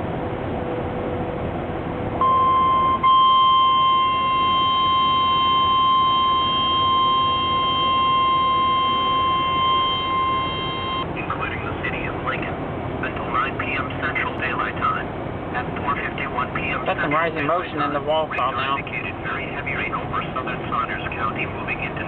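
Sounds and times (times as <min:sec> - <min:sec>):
steady background noise: 0:00.0 - 0:22.0
steady alert tone beep: 0:02.2 - 0:11.1.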